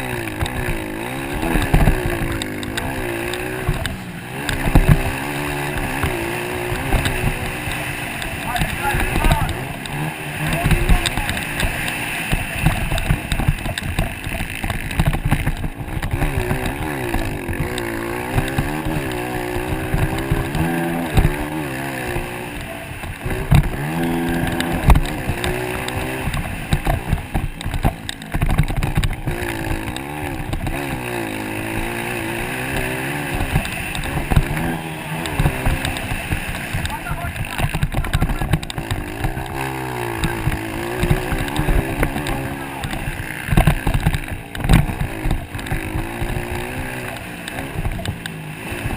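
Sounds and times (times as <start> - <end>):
dirt bike engines revving: 0.0 - 48.9.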